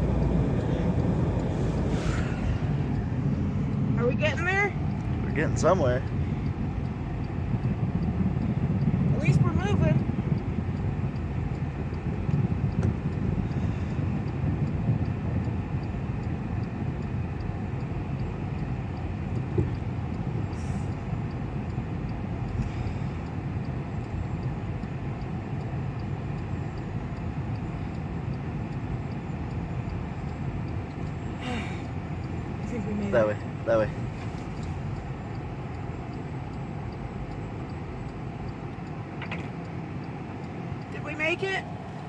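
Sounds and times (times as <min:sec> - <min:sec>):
car engine rumbling: 0:00.0 - 0:42.0.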